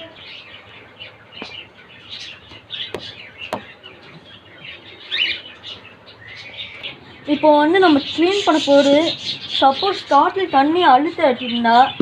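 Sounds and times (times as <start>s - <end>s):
cockatiels chirping: 7.8s - 10.4s.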